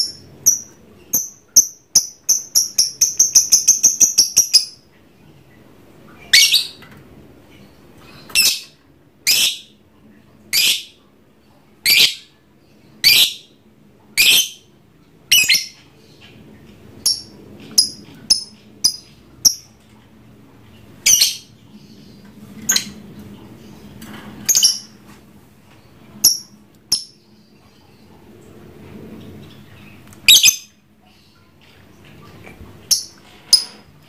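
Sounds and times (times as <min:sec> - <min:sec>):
lovebird high chirps: 0:00.0 - 0:04.8, 0:06.3 - 0:06.8, 0:11.8 - 0:12.3, 0:14.2 - 0:14.6, 0:15.3 - 0:15.8, 0:17.0 - 0:19.7, 0:21.0 - 0:21.5, 0:30.2 - 0:30.7
lovebird shrill calls: 0:30.3 - 0:30.7.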